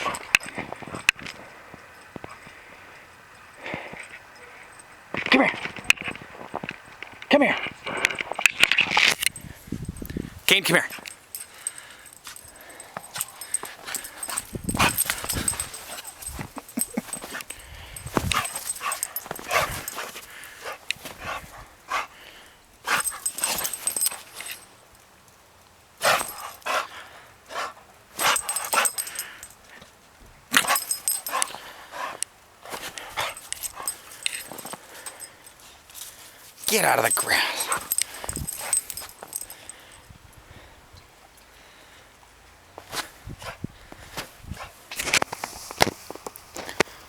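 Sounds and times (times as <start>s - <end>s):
dog barking and yipping: 10.9s - 22.1s, 27.6s - 29.4s, 30.5s - 32.2s, 33.0s - 35.4s, 36.6s - 39.7s.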